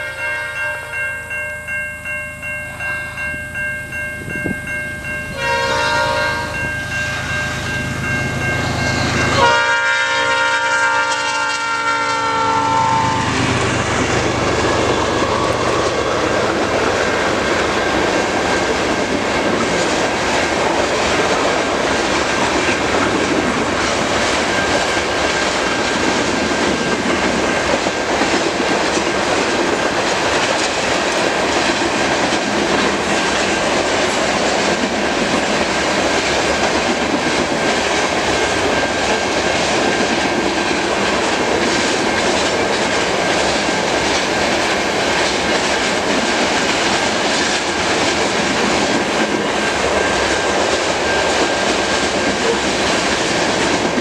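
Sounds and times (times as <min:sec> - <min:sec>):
locomotive multi-note horn: 0:00.0 - 0:01.0, 0:05.4 - 0:07.7, 0:08.6 - 0:14.0.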